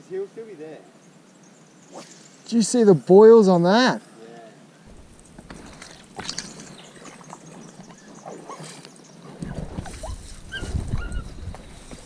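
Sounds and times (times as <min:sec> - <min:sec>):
low rumble of movement: 0:04.9 - 0:08.1
dog whining: 0:09.4 - 0:11.4.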